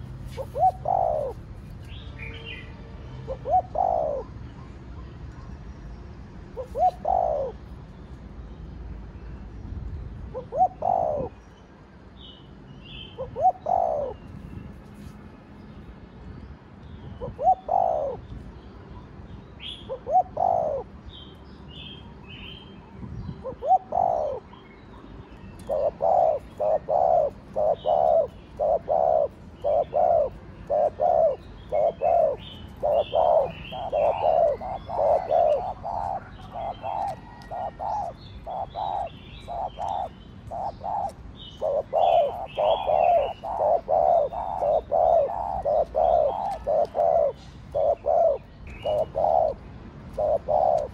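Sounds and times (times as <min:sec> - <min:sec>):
dove cooing: 0:00.0 - 0:01.5, 0:03.3 - 0:04.4, 0:06.5 - 0:07.7, 0:10.3 - 0:11.4, 0:13.2 - 0:14.2, 0:17.2 - 0:18.2, 0:19.8 - 0:21.0, 0:23.4 - 0:24.6, 0:25.6 - 0:50.9
small birds chirping: 0:00.0 - 0:02.7, 0:16.8 - 0:50.9.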